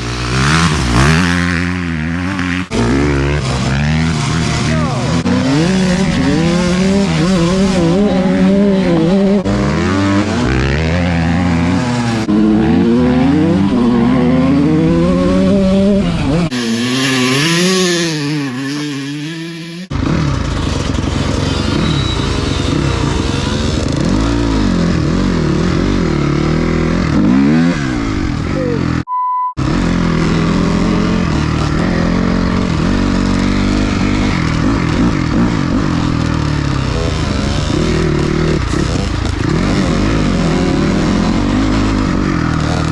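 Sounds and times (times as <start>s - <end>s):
dirt bike engine revving: 0.0s - 42.9s
short beep: 29.1s - 29.6s.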